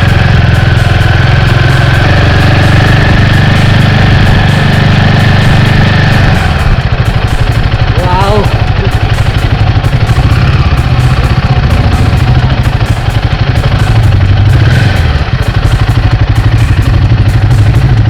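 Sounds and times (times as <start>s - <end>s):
motorcycle engine throbbing: 0.0s - 18.0s.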